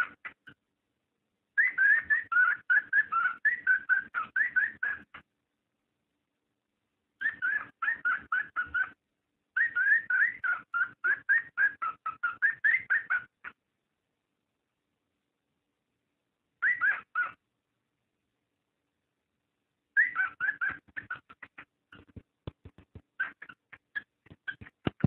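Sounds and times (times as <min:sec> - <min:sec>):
cockatiel whistled chirps: 0:01.6 - 0:05.2, 0:07.2 - 0:09.0, 0:09.6 - 0:13.6, 0:16.6 - 0:17.4, 0:20.0 - 0:21.6.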